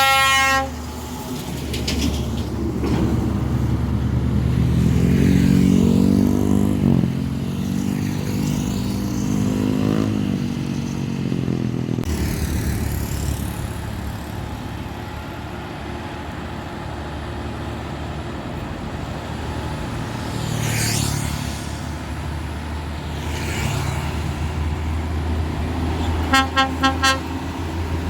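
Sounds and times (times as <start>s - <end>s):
truck horn toots: 0.0s - 0.9s, 26.0s - 27.6s
diesel truck engines running: 0.0s - 28.0s
airy hissing rushes: 20.6s - 26.2s.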